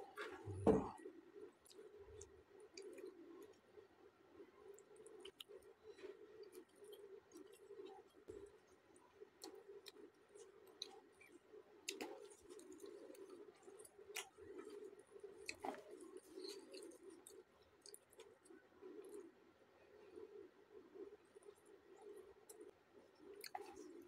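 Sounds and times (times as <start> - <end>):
man chewing: 1.6 - 3.6, 4.8 - 19.3, 21.4 - 24.0.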